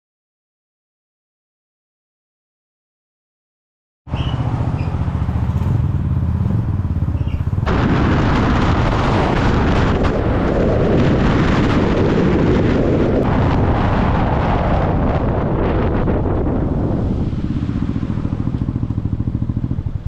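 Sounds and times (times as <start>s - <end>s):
vehicle engine droning: 4.1s - 20.0s
wind and road noise: 4.1s - 20.0s.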